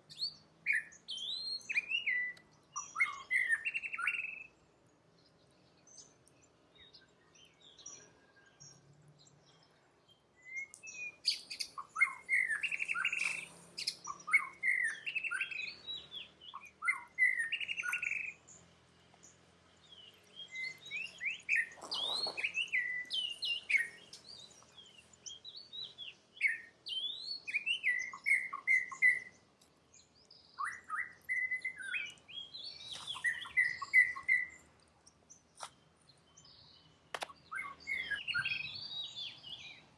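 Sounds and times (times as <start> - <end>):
high-pitched chirping calls: 10.7 - 18.4, 20.4 - 29.3, 30.5 - 34.6.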